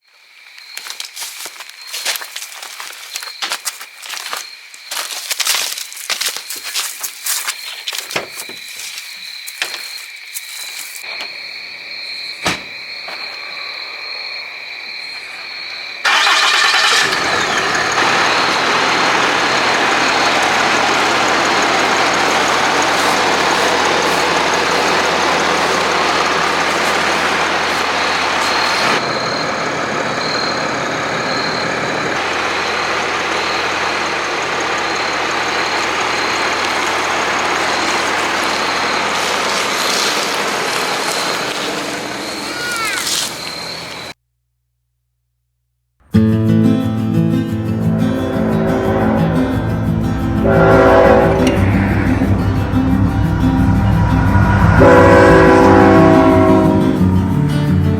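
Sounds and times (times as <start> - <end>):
diesel engine starting and idling: 16.0 - 44.2, 46.5 - 57.9.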